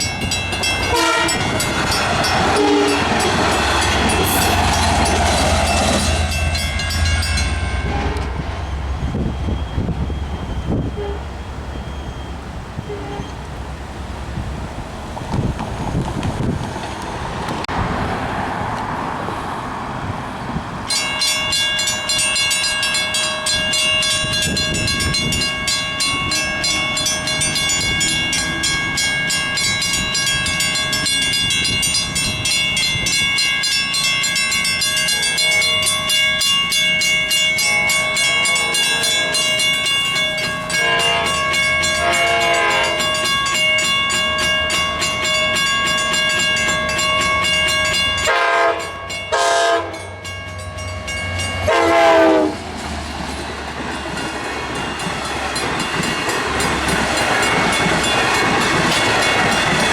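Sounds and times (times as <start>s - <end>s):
crossing warning bell ringing: 0.0s - 13.5s, 20.8s - 59.9s
train horn blasts: 0.8s - 1.6s, 2.5s - 3.4s, 7.7s - 8.5s, 10.5s - 11.3s, 12.8s - 13.4s, 37.6s - 39.7s, 40.7s - 43.3s, 48.2s - 50.3s, 51.6s - 52.6s.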